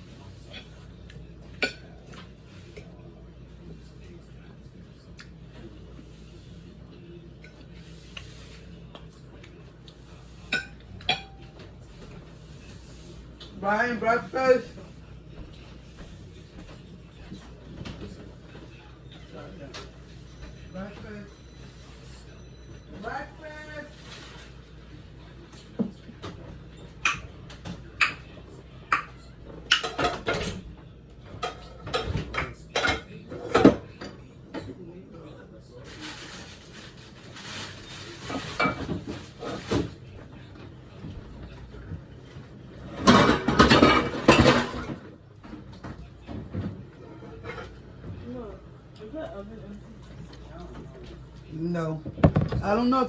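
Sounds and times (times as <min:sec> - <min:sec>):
dishes clinking: 0:01.5 - 0:02.9, 0:10.4 - 0:11.7, 0:31.3 - 0:34.7, 0:42.9 - 0:45.0.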